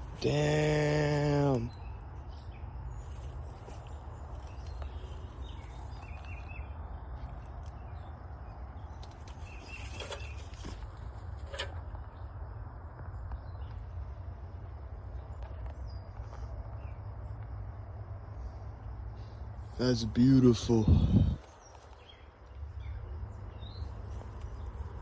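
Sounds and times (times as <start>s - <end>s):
wind rumble on microphone: 20.7s - 25.0s.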